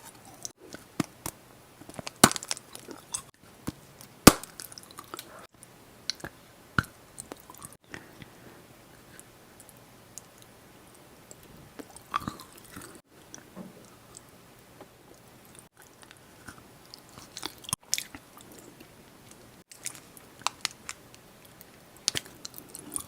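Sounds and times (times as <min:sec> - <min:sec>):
chewing chocolate candy crunching: 0:01.8 - 0:03.3, 0:04.0 - 0:05.5, 0:11.3 - 0:13.4, 0:15.1 - 0:23.0.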